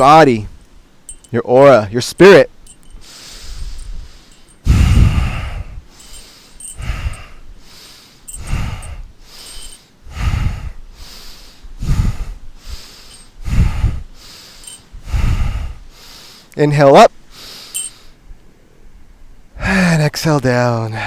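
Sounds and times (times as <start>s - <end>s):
person breathing deeply: 3.0s - 16.6s, 17.3s - 18.2s.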